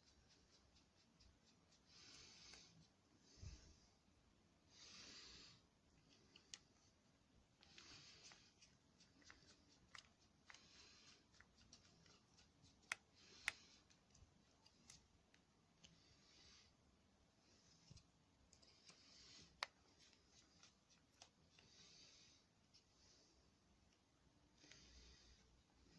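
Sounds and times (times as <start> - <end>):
soft rustles of hands: 4.7 - 16.8, 17.4 - 25.9
faint clicks of small parts: 5.9 - 6.9, 7.6 - 16.1, 17.8 - 22.0.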